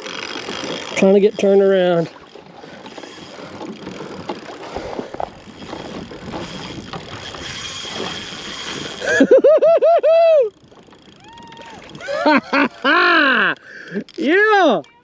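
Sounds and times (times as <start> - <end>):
boat knocks and clicks: 0.0 - 9.3, 10.5 - 12.7
water lapping against kayak hull: 0.0 - 15.0.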